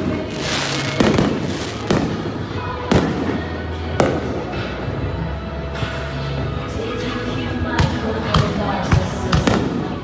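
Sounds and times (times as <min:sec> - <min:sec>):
fireworks crackling burst: 0:00.0 - 0:03.7
fireworks shells exploding: 0:00.0 - 0:04.5.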